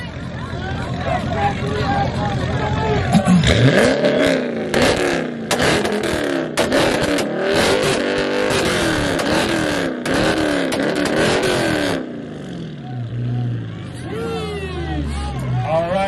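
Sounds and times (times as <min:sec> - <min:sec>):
car engine revving hard: 0:03.1 - 0:12.8
sharp exhaust pops: 0:04.7 - 0:12.0.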